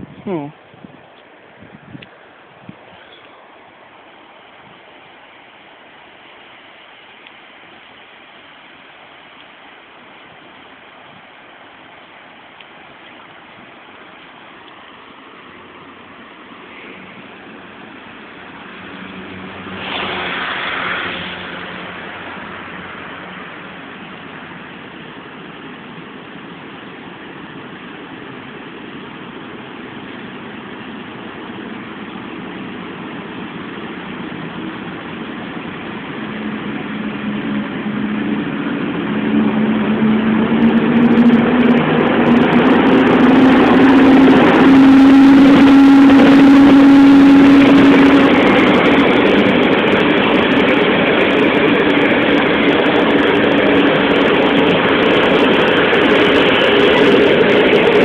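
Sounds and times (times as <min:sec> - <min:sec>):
passenger train pulling in: 0:13.8 - 0:58.0.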